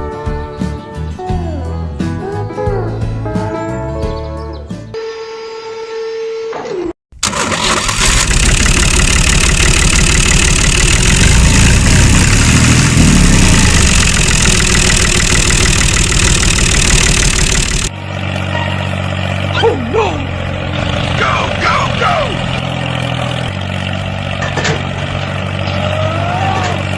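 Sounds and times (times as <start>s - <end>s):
loud engine running: 7.2s - 26.9s.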